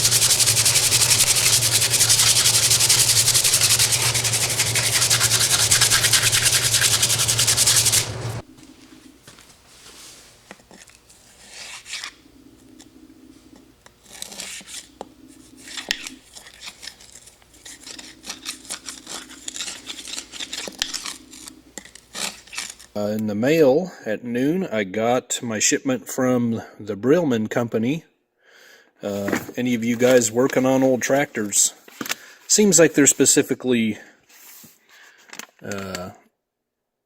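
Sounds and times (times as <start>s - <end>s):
power sander grinding: 0.0s - 8.4s
rubbing and scraping strokes: 0.0s - 8.4s, 15.6s - 22.9s.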